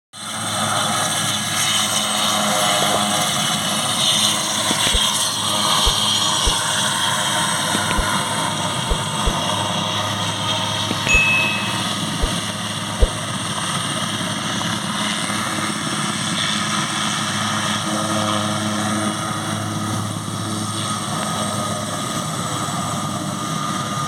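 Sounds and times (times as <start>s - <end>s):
brief low thumps: 7.9s - 8.2s, 13.0s - 13.2s.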